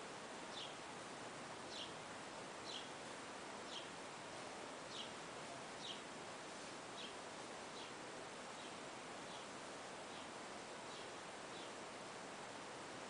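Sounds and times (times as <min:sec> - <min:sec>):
steady background hiss: 0:00.0 - 0:13.0
bird chirping: 0:00.5 - 0:00.8, 0:01.7 - 0:02.0, 0:02.6 - 0:02.9, 0:03.6 - 0:03.9, 0:04.9 - 0:05.2, 0:05.8 - 0:06.1, 0:07.0 - 0:08.0, 0:08.6 - 0:09.5, 0:10.9 - 0:11.8.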